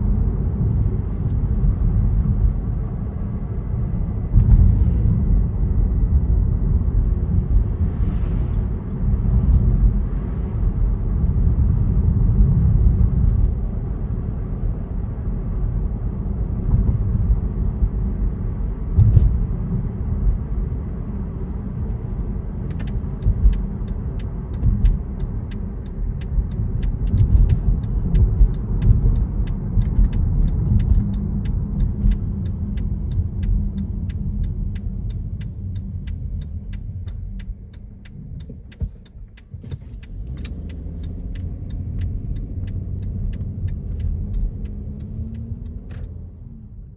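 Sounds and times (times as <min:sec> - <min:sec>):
car road and engine rumble: 0:00.0 - 0:46.9
rapid ticking of turn signal: 0:21.9 - 0:46.2.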